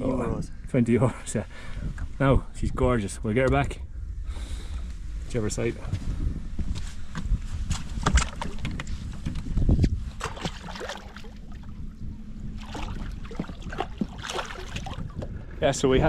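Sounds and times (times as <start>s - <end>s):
low steady rumble: 0.0s - 16.0s
knocks and clunks on boat: 7.1s - 11.8s, 12.6s - 15.6s.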